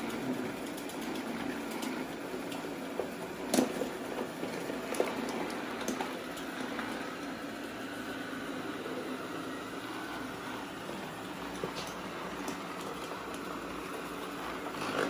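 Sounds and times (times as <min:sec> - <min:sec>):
vacuum knocking over cords: 0:00.0 - 0:07.3, 0:10.9 - 0:15.0
robot vacuum motor hum: 0:00.0 - 0:15.0.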